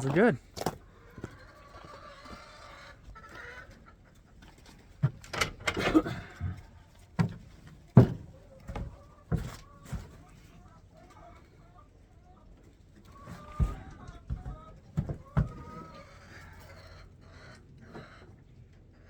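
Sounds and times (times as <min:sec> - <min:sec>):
chickens clucking: 0:00.0 - 0:19.0
sharp knocks and thuds: 0:07.2 - 0:10.2, 0:13.4 - 0:15.8.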